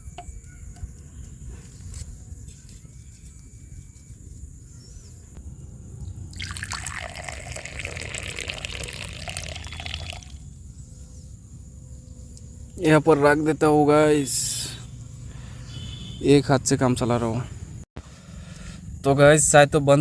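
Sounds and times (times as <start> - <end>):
liquid pouring and splashing: 6.3 - 10.4.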